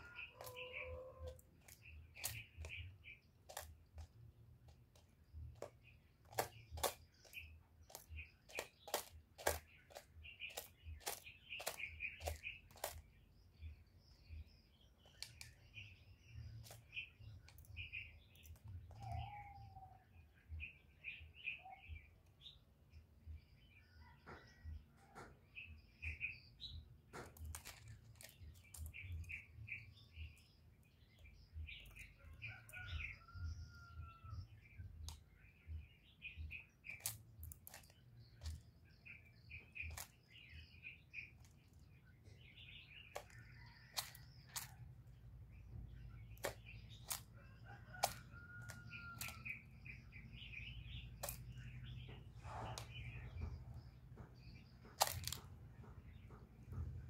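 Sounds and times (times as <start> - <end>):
small birds chirping: 0.0 - 57.0
sharp clicks and taps: 1.3 - 13.0, 43.1 - 44.8, 46.3 - 47.3, 51.1 - 57.0.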